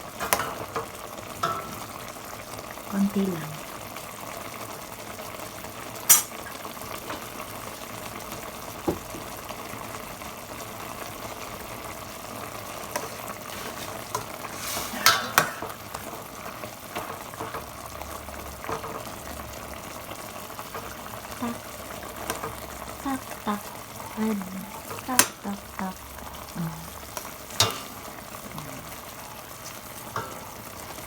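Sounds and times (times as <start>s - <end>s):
food simmering and sizzling in a pot: 0.0s - 31.0s
utensil clinking against pot: 14.9s - 16.1s, 27.6s - 28.0s.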